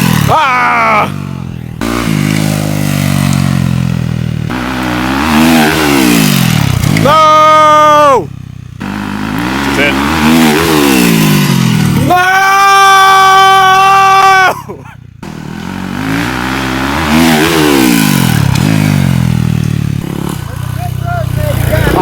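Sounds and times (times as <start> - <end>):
dirt bike revving and passing: 0.0 - 14.4, 15.1 - 22.0
person shouting: 0.2 - 1.2, 7.0 - 8.4, 12.0 - 15.0.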